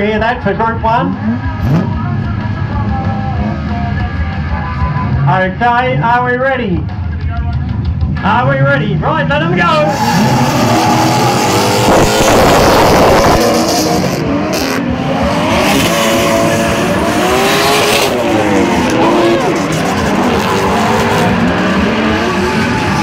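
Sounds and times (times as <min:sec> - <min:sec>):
car engines revving: 0:00.0 - 0:23.0
tyres squealing: 0:09.8 - 0:11.8.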